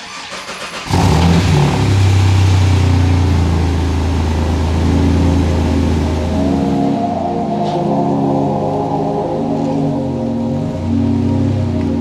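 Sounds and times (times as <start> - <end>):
starter motor cranking: 0.0 - 1.6
car engine idling: 0.0 - 12.0.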